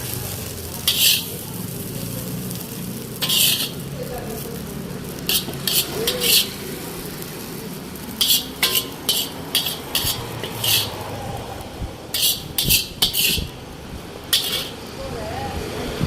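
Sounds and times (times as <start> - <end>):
metal ladle scraping a wok: 0.7 - 1.9, 2.5 - 11.2, 12.0 - 14.9.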